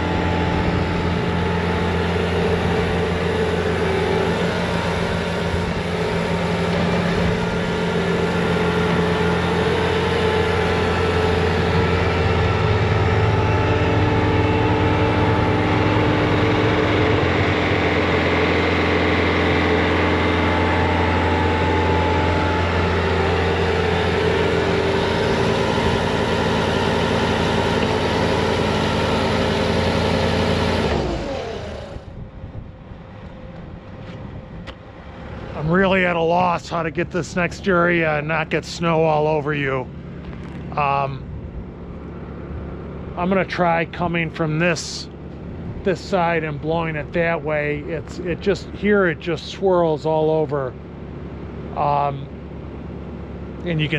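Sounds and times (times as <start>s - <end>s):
diesel engine running under load: 0.0s - 53.9s.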